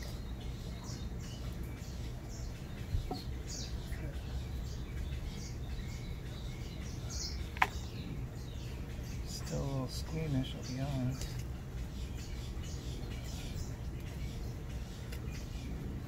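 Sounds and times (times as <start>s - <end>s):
low outdoor noise: 0.0s - 16.0s
small birds chirping: 0.0s - 16.0s
light tap: 7.6s - 7.8s.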